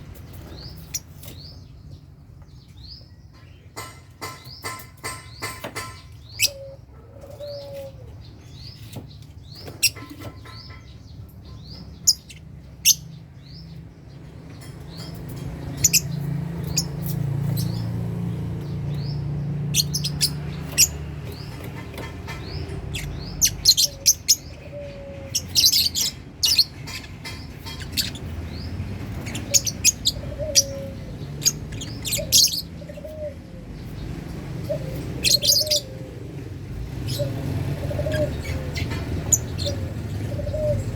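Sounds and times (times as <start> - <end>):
lovebirds chirping: 0.0 - 40.9.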